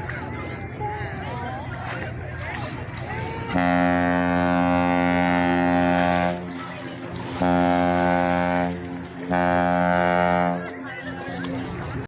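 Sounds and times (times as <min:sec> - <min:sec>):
ship's horn blasts: 0:03.4 - 0:12.0.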